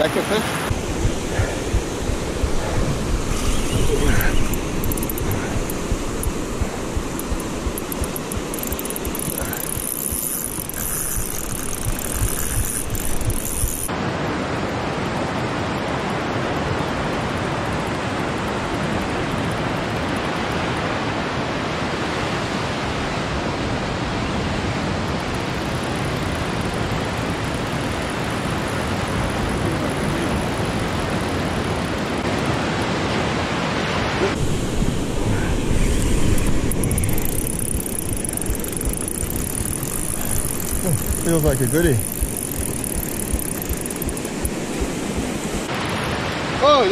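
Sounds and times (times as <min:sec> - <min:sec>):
surf rushing: 0:00.0 - 0:19.4, 0:21.0 - 0:46.9
wind on microphone: 0:00.6 - 0:13.9, 0:34.0 - 0:46.4.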